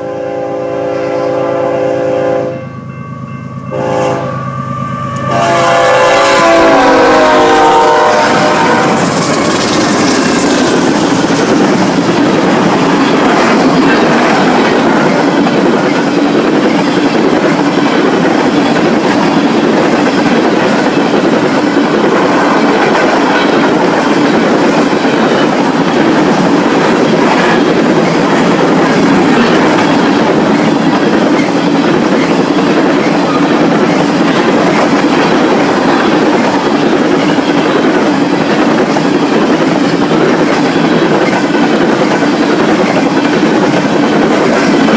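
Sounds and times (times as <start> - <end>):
train rolling past: 0.0 - 44.9
wheels clacking over rail joints: 7.7 - 44.9.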